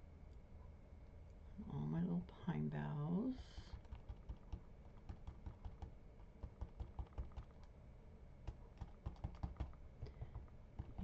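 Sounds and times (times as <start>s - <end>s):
glue bottle tip tapping paper: 3.8s - 7.6s.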